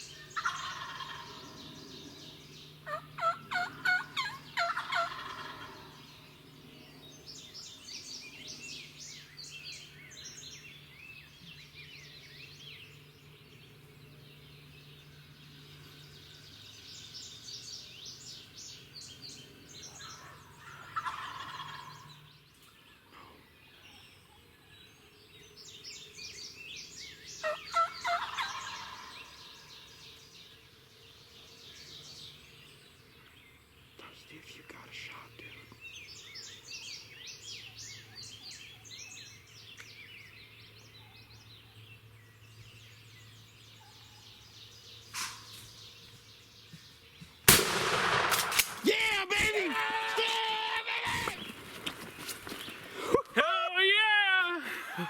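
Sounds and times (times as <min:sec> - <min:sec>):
songbirds chirping and singing: 0:00.0 - 0:55.0
wild turkey gobbling: 0:00.4 - 0:01.5, 0:02.8 - 0:06.0, 0:20.1 - 0:22.1, 0:27.4 - 0:29.5.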